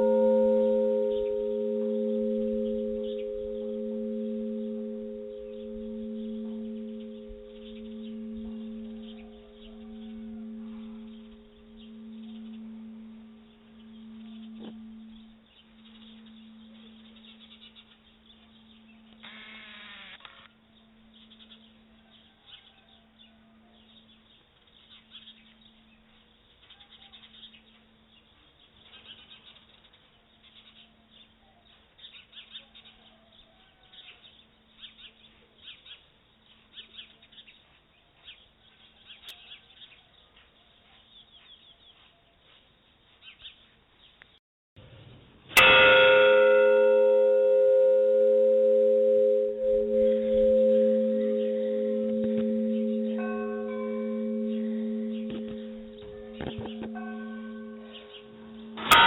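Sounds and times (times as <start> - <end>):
faint low pulsing tone: 0.0 - 19.2, 45.6 - 59.0
church bell ringing: 0.0 - 19.3, 45.6 - 59.0
small birds chirping: 5.5 - 44.4.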